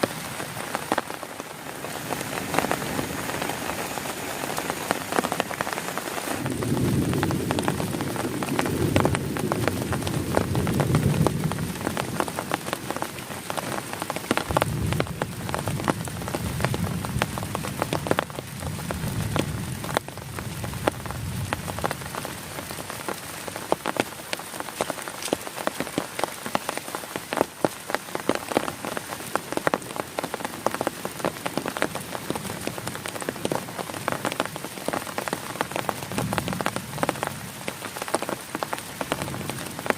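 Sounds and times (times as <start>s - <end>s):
heavy rain on a tent: 0.0s - 39.9s
low thunder rumbles: 6.3s - 12.6s, 14.4s - 22.2s.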